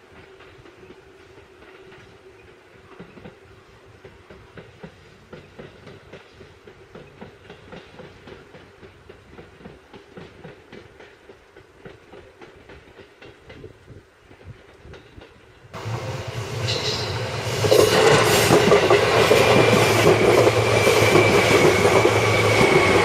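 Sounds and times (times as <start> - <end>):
wheels clacking over rail joints: 4.0 - 23.0
electric train passing: 15.4 - 23.0.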